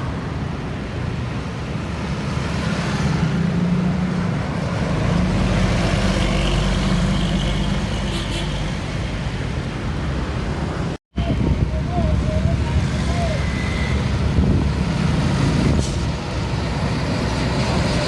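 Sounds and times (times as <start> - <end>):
tyre and road noise: 0.0 - 18.0.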